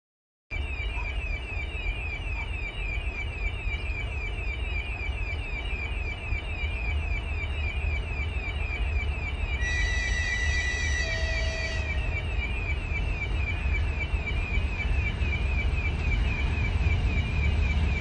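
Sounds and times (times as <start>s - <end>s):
electronic falling chirp signal: 0.5s - 18.0s
steady horn tone: 9.6s - 12.2s.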